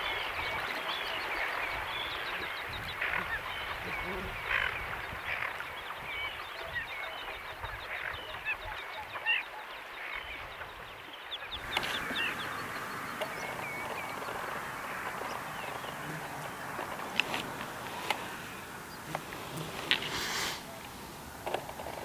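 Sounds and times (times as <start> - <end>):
waterbirds chirping and whistling: 0.0 - 22.0
steady background hiss: 11.5 - 22.0.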